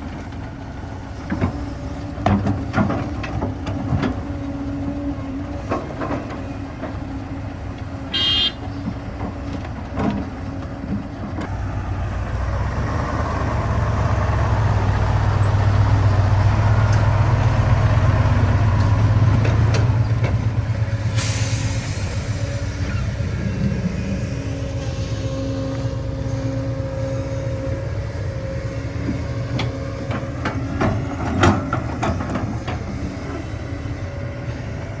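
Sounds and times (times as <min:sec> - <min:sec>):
diesel engine running: 0:00.0 - 0:35.0
brief hiss: 0:21.1 - 0:23.0.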